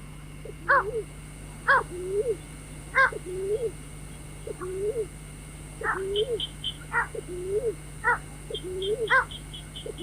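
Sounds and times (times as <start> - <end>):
waterhen croaking call: 5.8 - 10.0.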